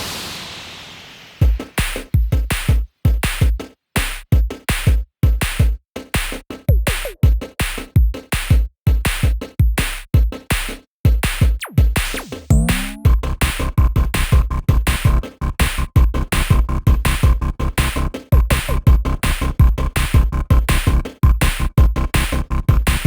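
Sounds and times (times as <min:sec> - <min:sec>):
swooping synth glide: 0:00.0 - 0:01.4
drum-machine beat: 0:01.4 - 0:23.0.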